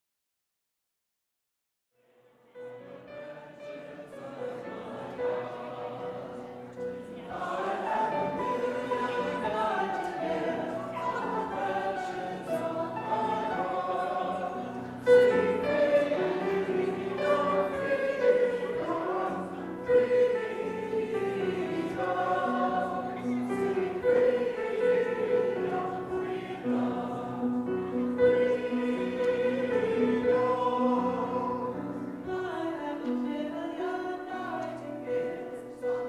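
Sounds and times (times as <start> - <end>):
choir singing sacred music: 2.4 - 36.0.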